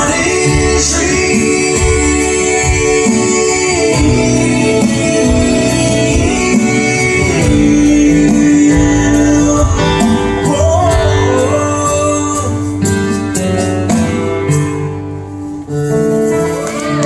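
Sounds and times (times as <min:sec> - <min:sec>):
live country-gospel band playing: 0:00.0 - 0:17.0.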